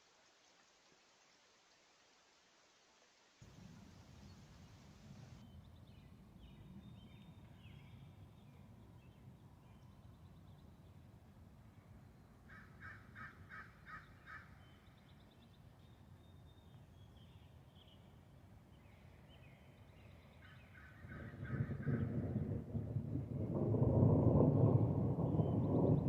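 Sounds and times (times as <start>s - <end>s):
thunder rumbling: 3.4s - 5.4s, 21.0s - 26.0s.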